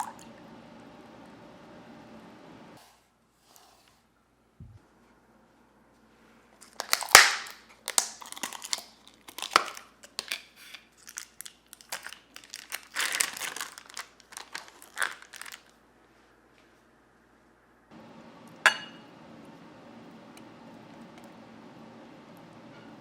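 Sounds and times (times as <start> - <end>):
packaging crinkling and rustling: 6.6 - 15.8.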